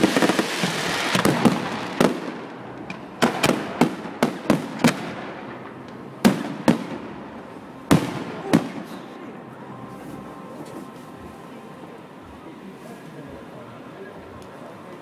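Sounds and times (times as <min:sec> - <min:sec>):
fireworks bursting with rumble: 0:00.0 - 0:09.2.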